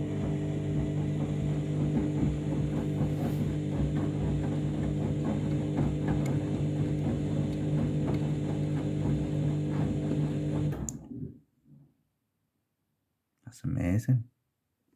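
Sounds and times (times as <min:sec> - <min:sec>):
washing machine motor hum: 0:00.0 - 0:11.3.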